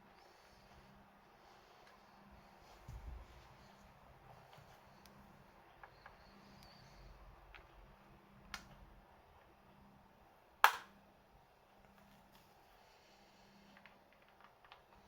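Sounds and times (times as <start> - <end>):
small parts being handled: 13.6 - 15.0.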